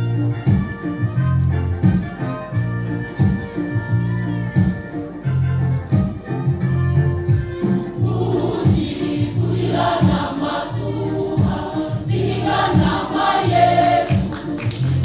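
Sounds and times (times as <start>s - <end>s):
instrumental accompaniment: 0.0s - 15.0s
youth choir singing: 7.9s - 14.8s.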